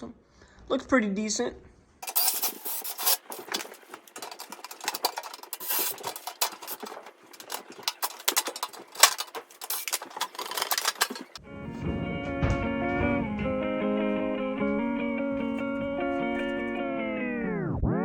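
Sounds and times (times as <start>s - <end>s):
metallic clinks and scraping: 2.0s - 11.4s.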